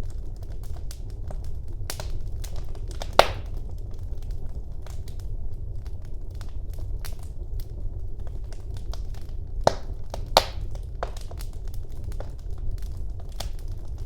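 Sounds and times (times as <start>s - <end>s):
fire crackling and popping: 0.0s - 14.0s
low rumble of flames: 0.0s - 14.0s
sharp snaps: 3.0s - 3.5s, 9.6s - 11.2s.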